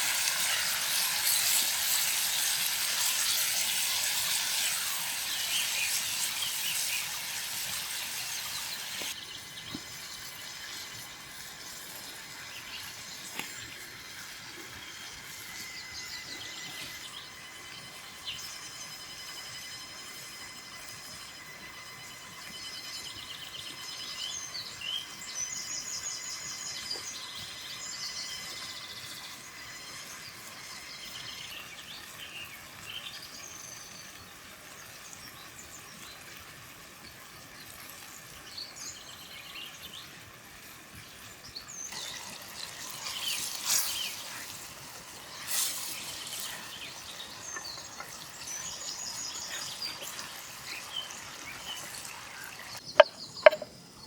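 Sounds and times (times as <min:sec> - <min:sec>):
outdoor hiss: 0:35.8 - 0:54.0.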